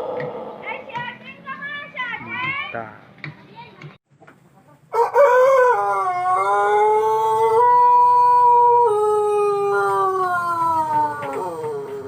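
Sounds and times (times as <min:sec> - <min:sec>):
rooster crowing: 0:04.9 - 0:12.0.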